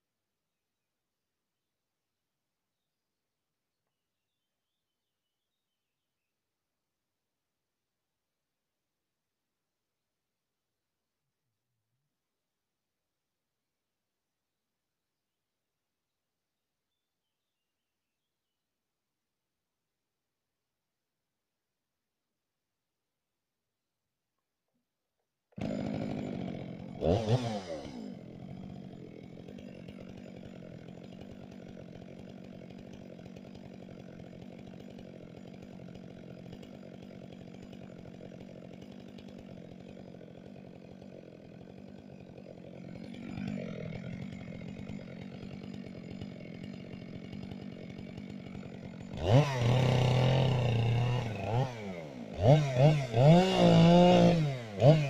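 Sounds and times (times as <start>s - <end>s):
chainsaw revving and idling: 25.5s - 55.0s.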